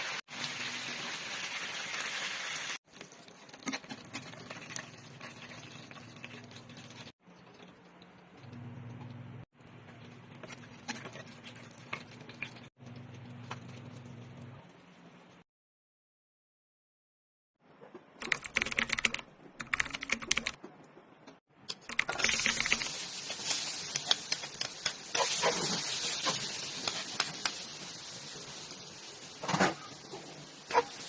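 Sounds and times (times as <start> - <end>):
food sizzling in hot oil: 0.0 - 3.4, 22.2 - 31.0.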